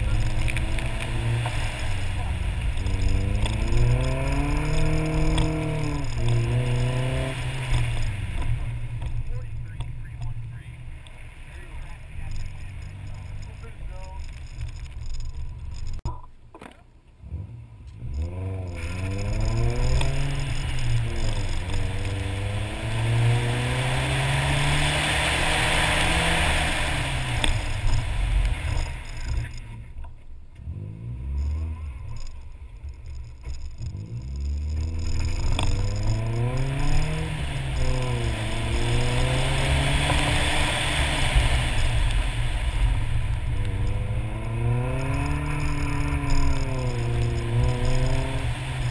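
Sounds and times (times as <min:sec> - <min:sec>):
car engine revving: 0:00.0 - 0:16.1, 0:17.2 - 0:48.9.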